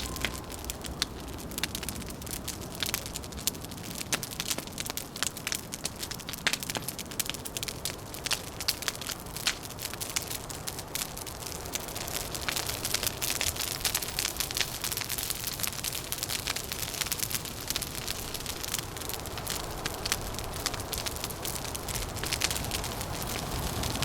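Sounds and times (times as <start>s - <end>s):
low rush of noise: 0.0s - 1.7s
wood fire crackling: 0.0s - 24.0s.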